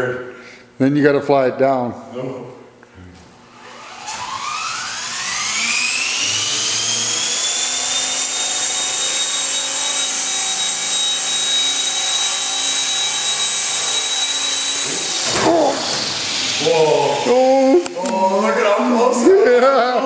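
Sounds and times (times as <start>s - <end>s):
model helicopter rotors whining: 3.5s - 18.9s.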